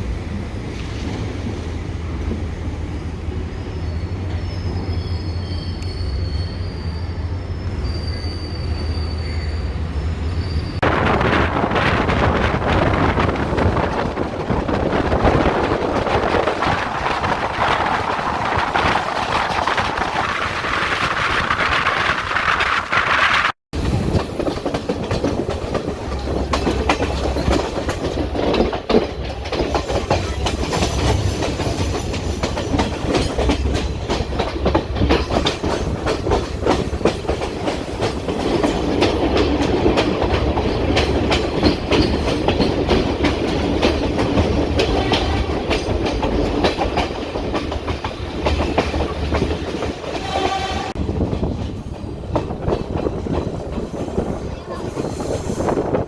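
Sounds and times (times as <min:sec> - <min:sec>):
low train rumble: 0:00.0 - 0:56.0
wheels clattering over rail joints: 0:12.9 - 0:56.0.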